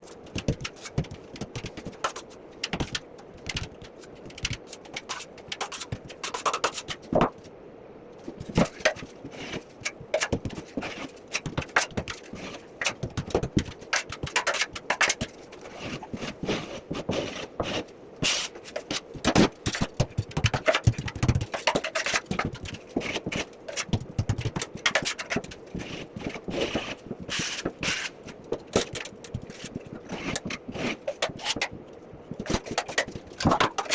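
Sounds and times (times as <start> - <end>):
drywall knife scraping: 8.6 - 24.0, 24.7 - 31.8.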